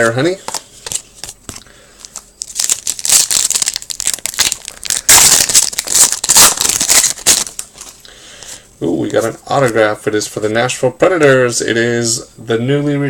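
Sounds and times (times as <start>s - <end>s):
foil wrapper tearing and crinkling: 2.1s - 8.0s.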